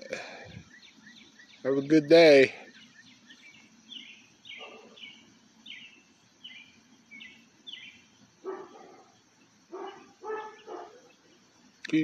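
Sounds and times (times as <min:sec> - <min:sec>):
bird chirping: 0:00.2 - 0:12.0
dog barking: 0:04.6 - 0:05.0, 0:08.4 - 0:11.1.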